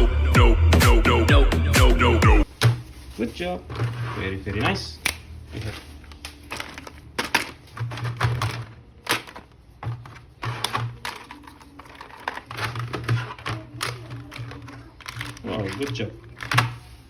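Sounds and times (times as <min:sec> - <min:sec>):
plastic toy parts clicking: 0:06.1 - 0:16.8.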